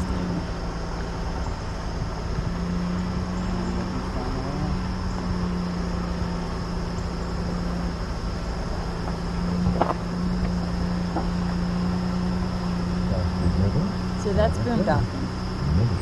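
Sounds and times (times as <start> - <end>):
road rumble: 0.0 - 16.0
truck engine hum: 0.0 - 16.0.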